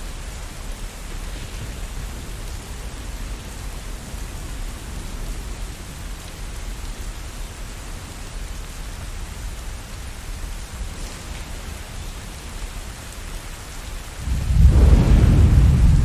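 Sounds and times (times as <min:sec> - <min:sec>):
rain falling: 0:00.0 - 0:16.0
thunder rumbling: 0:10.7 - 0:16.0.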